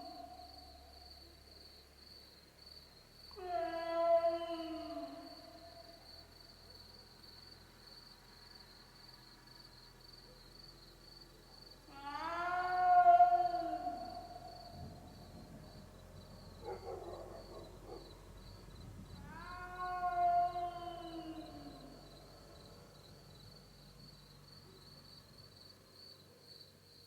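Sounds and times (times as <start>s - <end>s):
animal howling wail: 11.9s - 14.5s, 19.2s - 22.0s
rough animal call: 11.9s - 15.7s, 19.2s - 22.2s.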